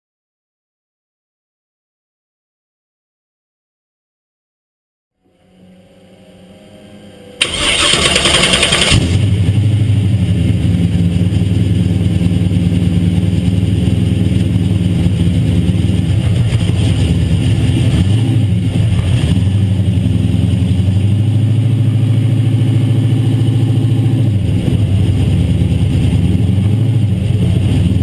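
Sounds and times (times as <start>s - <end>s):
engine starter cranking: 7.4s - 9.3s
car engine idling loudly: 7.4s - 28.0s.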